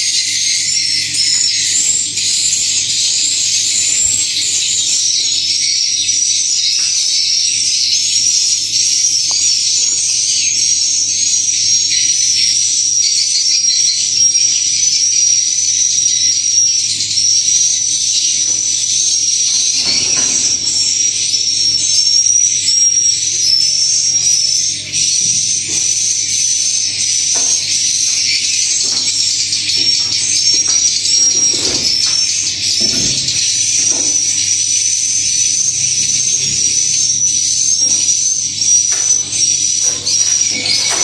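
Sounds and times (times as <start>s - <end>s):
swiftlets chirping: 25.4s - 41.0s.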